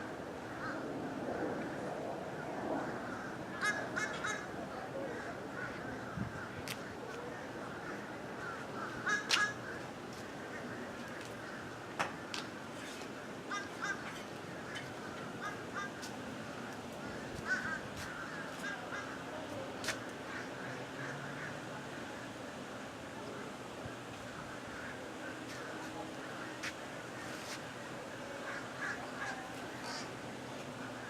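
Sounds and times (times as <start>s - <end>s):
crows cawing: 0.5s - 0.9s, 2.8s - 11.8s, 13.5s - 16.1s, 17.0s - 22.0s, 24.3s - 27.6s, 28.4s - 30.2s.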